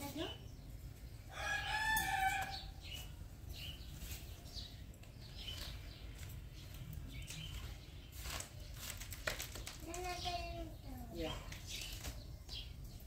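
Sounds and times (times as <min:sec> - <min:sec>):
high bird chirps: 0:01.3 - 0:08.9.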